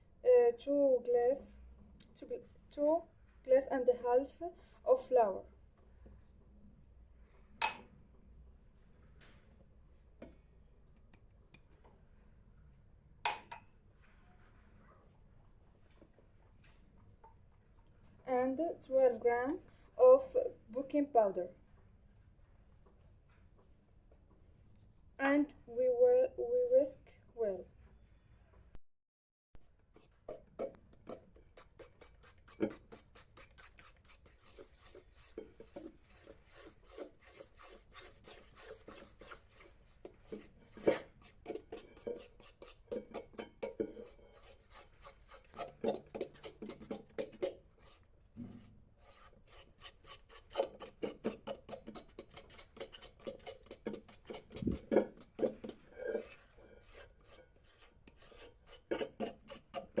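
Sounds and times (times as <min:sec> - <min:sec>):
whisk beating batter in a bowl: 0:29.7 - 0:48.1, 0:48.7 - 1:00.0.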